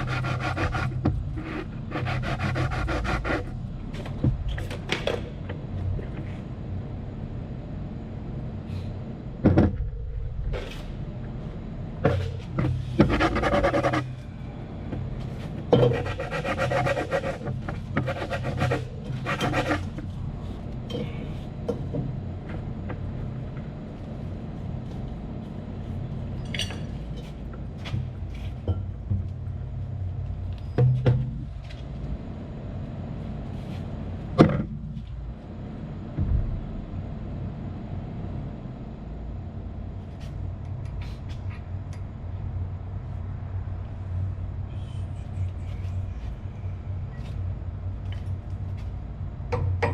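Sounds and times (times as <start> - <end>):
low machinery hum: 0.0 - 49.9
metal tools clanking on machinery: 26.4 - 27.4.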